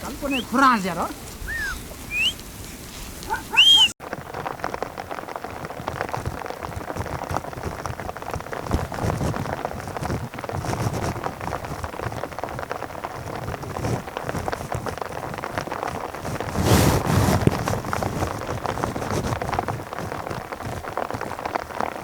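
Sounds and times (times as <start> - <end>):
high chirping calls: 0.0 - 4.0
pattering of small ticks: 0.0 - 16.6, 17.4 - 22.0.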